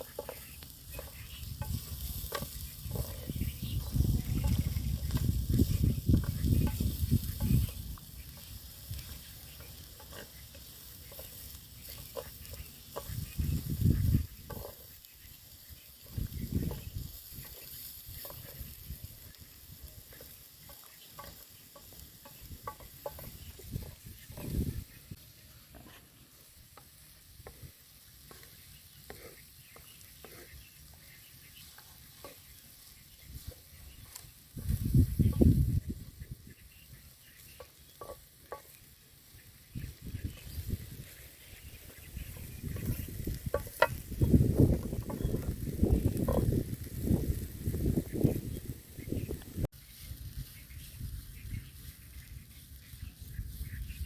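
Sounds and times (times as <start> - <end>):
spoon scraping and knocking pan: 0.0 - 15.0, 15.6 - 25.1, 25.7 - 32.7, 37.5 - 38.9, 41.8 - 44.1
food sizzling in a pan: 0.0 - 54.0.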